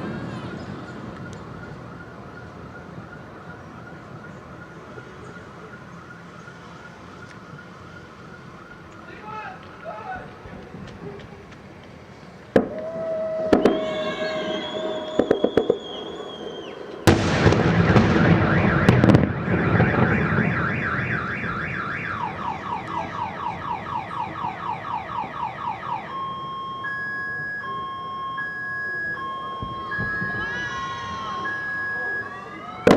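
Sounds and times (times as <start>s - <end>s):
car alarm: 0.0s - 9.4s, 13.2s - 32.9s
fireworks cracking and banging: 10.5s - 23.7s, 29.6s - 31.6s.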